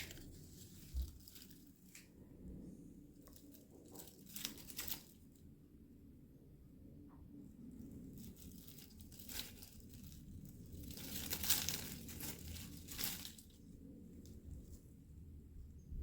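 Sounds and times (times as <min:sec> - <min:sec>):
bird tearing and chewing leaves: 0:00.0 - 0:02.1, 0:03.2 - 0:05.3, 0:07.9 - 0:14.8.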